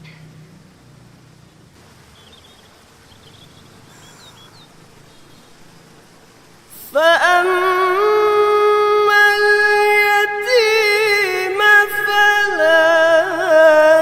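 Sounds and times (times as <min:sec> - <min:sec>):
low hiss: 0:00.0 - 0:14.0
birds chirping: 0:01.4 - 0:06.8
person chanting: 0:06.7 - 0:14.0.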